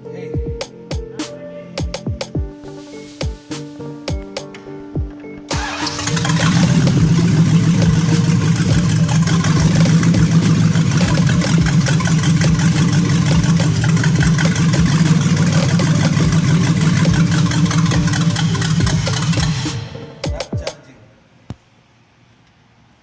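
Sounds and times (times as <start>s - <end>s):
car engine running: 5.6s - 19.6s.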